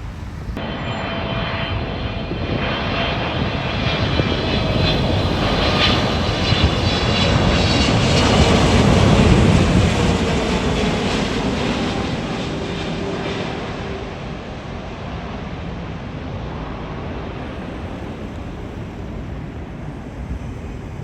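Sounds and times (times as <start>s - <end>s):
steady rumbling: 0.0s - 0.8s, 3.0s - 11.7s
faint whine: 0.0s - 11.7s
jet engine noise: 0.0s - 21.0s.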